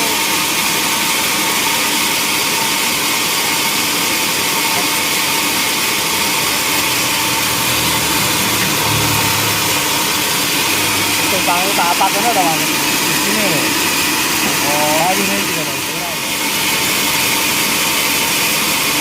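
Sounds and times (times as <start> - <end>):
sawmill machinery running: 0.0 - 19.0
low rumble: 5.8 - 14.7.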